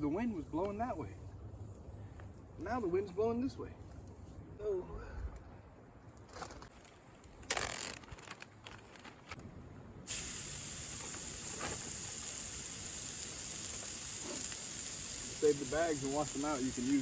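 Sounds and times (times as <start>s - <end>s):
steak sizzling in a pan: 10.1s - 17.0s.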